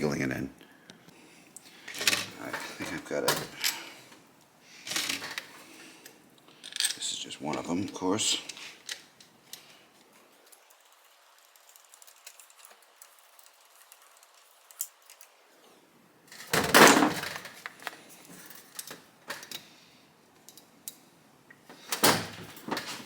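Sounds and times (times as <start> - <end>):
light clicks and handling noise: 0.9 - 23.0
wires scraping rustle: 1.6 - 19.4.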